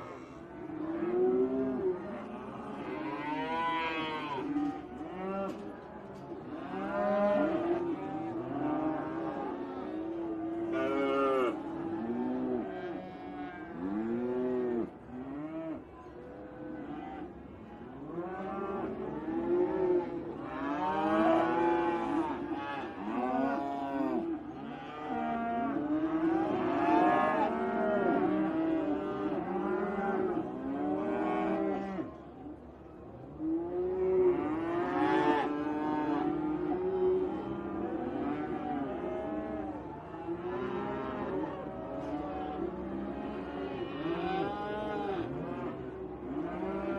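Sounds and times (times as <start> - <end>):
cows mooing: 34.0 - 46.9.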